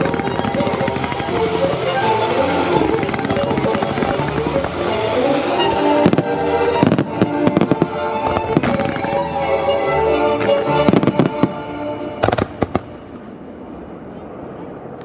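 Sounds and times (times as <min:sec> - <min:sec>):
classical music over loudspeakers: 0:00.0 - 0:13.6
fireworks bursting and crackling: 0:00.0 - 0:14.1.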